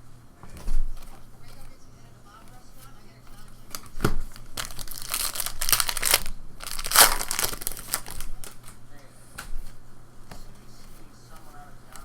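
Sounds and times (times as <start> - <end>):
wrappers crinkling and tearing: 3.7 - 8.8.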